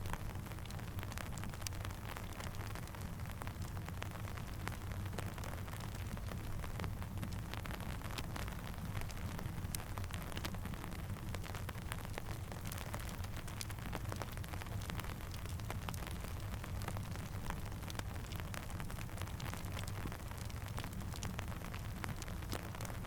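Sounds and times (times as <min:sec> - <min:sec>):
sharp crackles and pops: 0:00.0 - 0:23.0
steady rain: 0:00.0 - 0:23.0.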